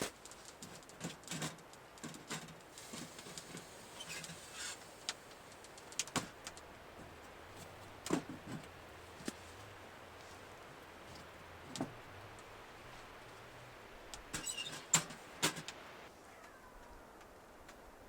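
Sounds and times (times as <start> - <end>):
clicks knocks and rustles: 0.0 - 9.5, 14.2 - 15.8.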